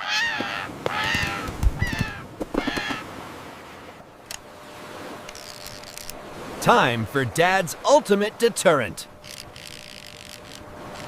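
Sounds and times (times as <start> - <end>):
seagulls squawking: 0.0 - 3.1.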